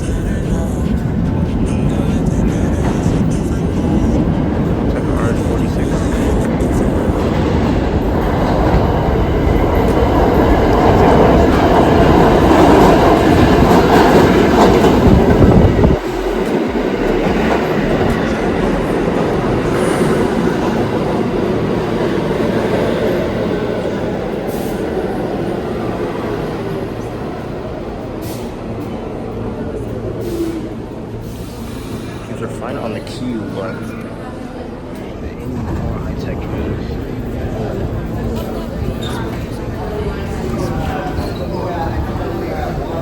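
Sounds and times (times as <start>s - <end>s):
wheels clacking on rails: 0.0s - 31.2s
subway train passing: 0.0s - 43.0s.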